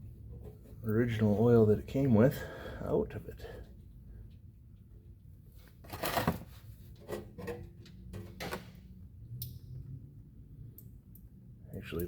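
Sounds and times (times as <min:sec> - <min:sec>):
metal knocks and scrapes: 0:05.8 - 0:08.7.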